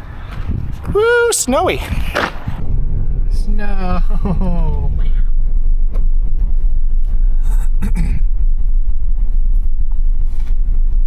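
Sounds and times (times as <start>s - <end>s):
car driving rumble: 0.0s - 11.0s
brief knocks: 2.1s - 2.6s.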